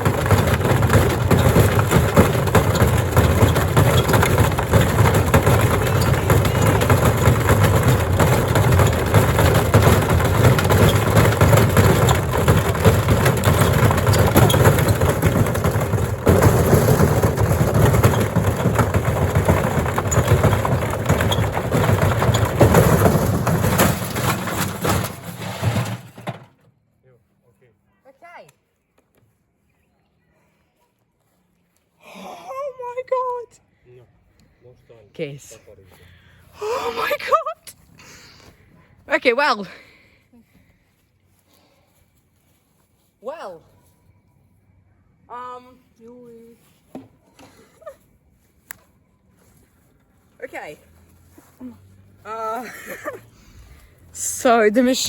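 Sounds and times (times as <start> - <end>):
washing machine drum banging: 0.0 - 26.0
bricks crashing in a drum: 0.0 - 26.4.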